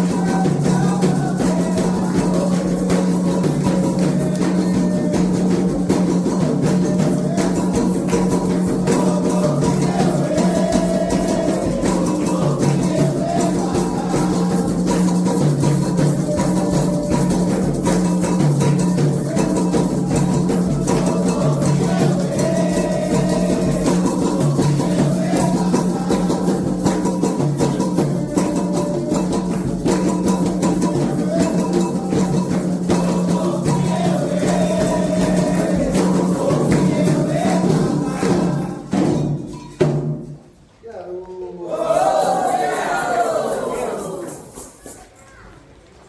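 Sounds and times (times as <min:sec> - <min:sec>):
person singing: 0:00.0 - 0:05.9, 0:06.7 - 0:17.9, 0:19.0 - 0:29.7, 0:30.6 - 0:39.2
hand drums playing: 0:00.0 - 0:40.5
shakers: 0:00.0 - 0:40.8, 0:41.6 - 0:45.7.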